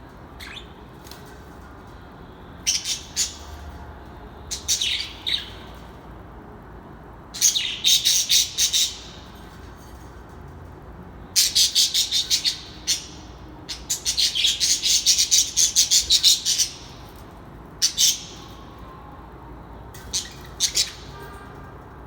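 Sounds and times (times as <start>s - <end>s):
birds chirping sharply: 0.3s - 1.6s, 2.6s - 3.8s, 4.4s - 6.0s, 7.4s - 9.9s, 11.3s - 18.9s, 20.0s - 21.5s.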